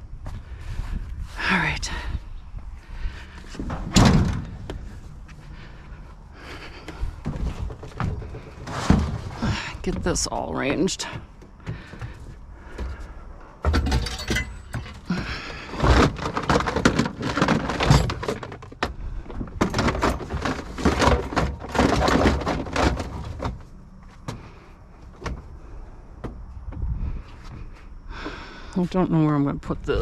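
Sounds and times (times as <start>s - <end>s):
hard objects clattering and thudding: 3.2s - 5.8s, 6.4s - 24.6s.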